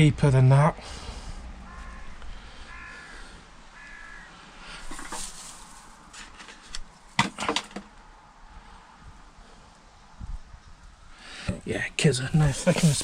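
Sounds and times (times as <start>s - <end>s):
crow cawing: 1.6s - 5.2s
sharp knocks and crunches: 4.9s - 7.9s.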